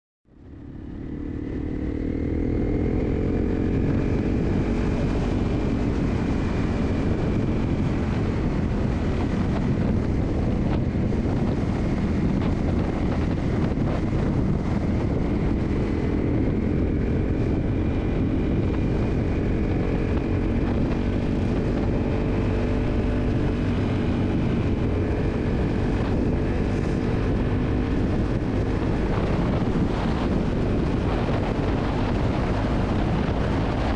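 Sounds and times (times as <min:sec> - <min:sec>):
motorcycle engine cruising: 0:00.3 - 0:33.9
road and wind noise: 0:00.3 - 0:33.9.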